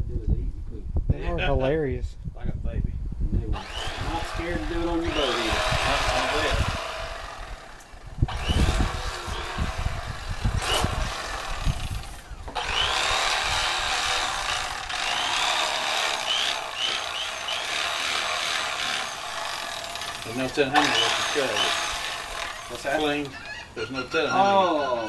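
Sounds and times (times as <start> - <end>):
electric fillet knife motor: 3.6 - 23.4.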